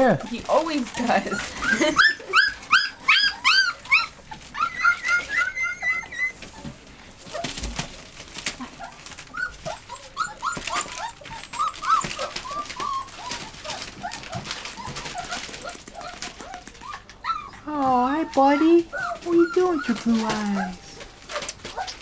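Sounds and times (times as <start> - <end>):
puppies whimpering and yipping: 0.0 - 22.0.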